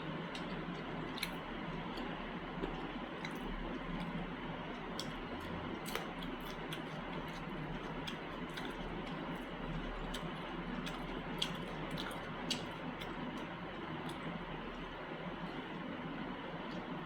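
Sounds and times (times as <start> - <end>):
person chewing: 0.0 - 15.8.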